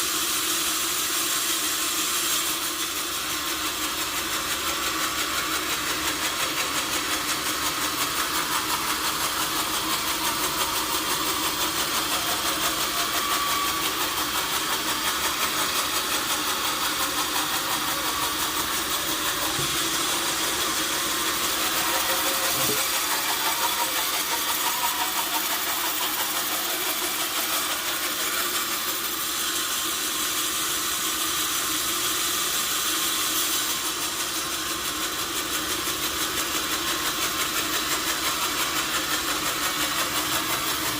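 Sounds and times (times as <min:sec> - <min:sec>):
sawmill machinery running: 0:00.0 - 0:40.9.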